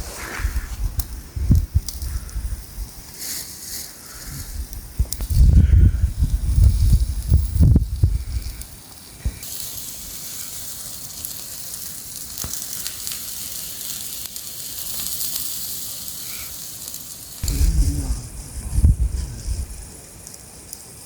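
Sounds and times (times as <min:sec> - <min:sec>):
food sizzling over campfire: 0:00.0 - 0:21.0
low rumble: 0:17.4 - 0:20.0.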